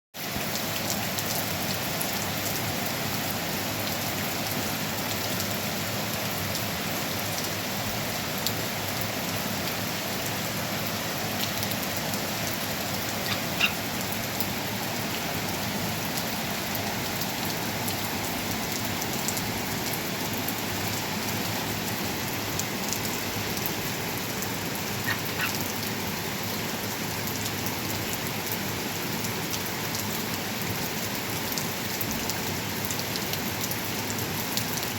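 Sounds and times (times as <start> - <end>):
steady rain falling: 0.2 - 34.9.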